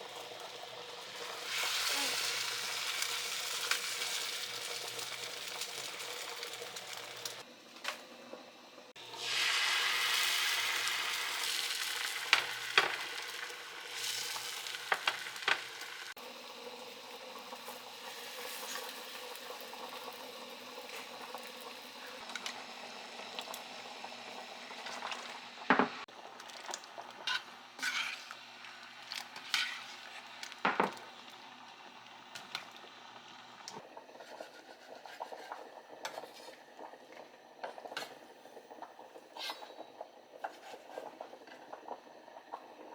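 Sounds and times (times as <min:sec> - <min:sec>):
food sizzling in a hot pan: 0:00.0 - 0:07.5, 0:09.0 - 0:26.4, 0:27.1 - 0:33.6
utensil stirring and scraping: 0:27.2 - 0:28.4, 0:34.2 - 0:36.6.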